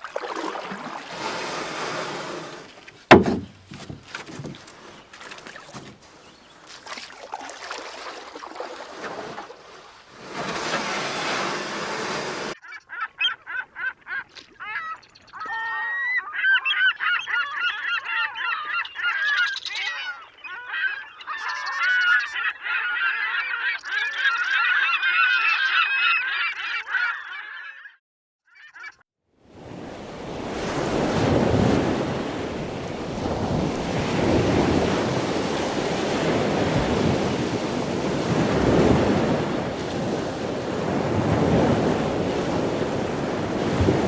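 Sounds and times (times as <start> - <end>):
flock of birds calling: 14.6 - 27.9.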